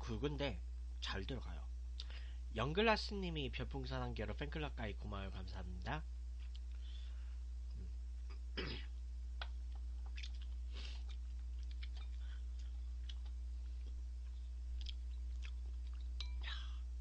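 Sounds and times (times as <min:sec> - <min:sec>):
low hum: 0:00.0 - 0:17.0
person chewing noodles: 0:09.4 - 0:16.8.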